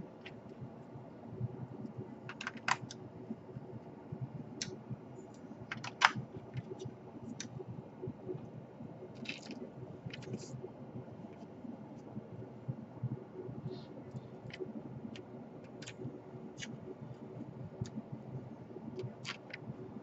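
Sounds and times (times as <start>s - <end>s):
laptop parts clicking: 2.3s - 3.0s, 4.6s - 7.6s, 9.2s - 10.5s, 14.3s - 16.8s, 18.9s - 19.7s.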